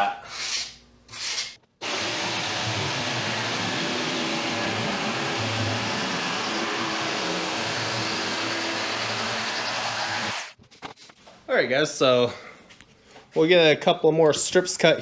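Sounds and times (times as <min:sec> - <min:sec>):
power tool motor whining: 0:01.8 - 0:10.5.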